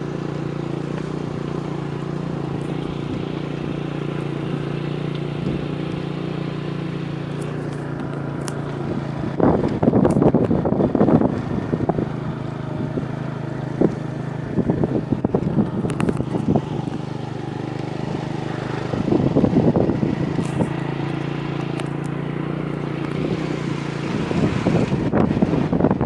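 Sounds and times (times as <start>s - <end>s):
motorcycle engine running: 0.0s - 26.0s
wind on microphone: 7.7s - 21.2s, 22.9s - 26.0s.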